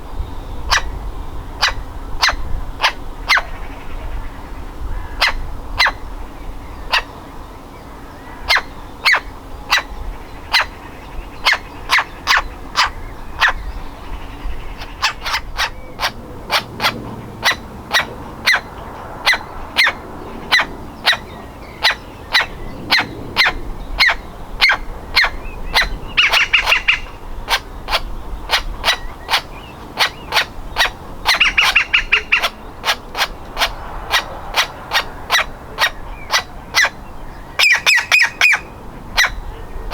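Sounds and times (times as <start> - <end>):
woodpecker nestling calling: 8.4 - 39.5.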